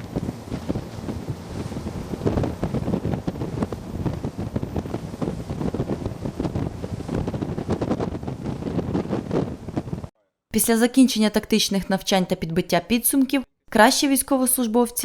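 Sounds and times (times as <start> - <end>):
sea waves rushing: 0.0 - 10.1
wind buffeting microphone: 0.0 - 10.1.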